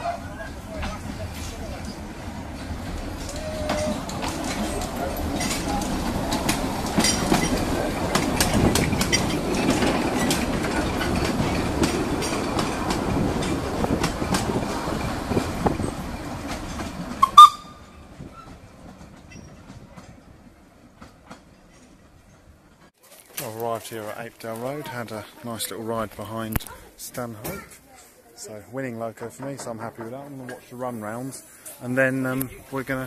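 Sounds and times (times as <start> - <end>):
train rumble: 0.0 - 22.9
wheels clicking over rail joints: 0.0 - 27.9, 29.1 - 33.0.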